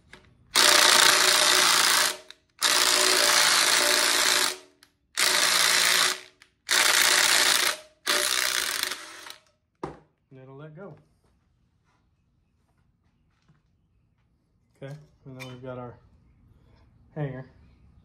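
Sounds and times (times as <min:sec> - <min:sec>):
electric wrench running: 0:00.5 - 0:09.5.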